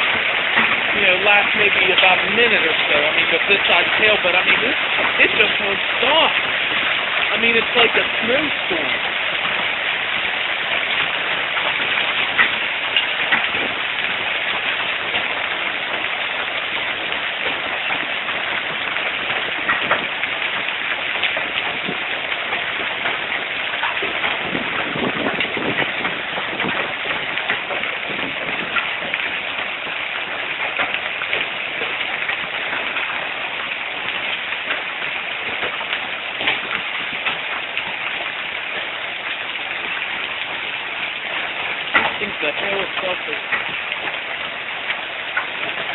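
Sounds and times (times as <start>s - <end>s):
hail clattering: 0.0s - 45.9s.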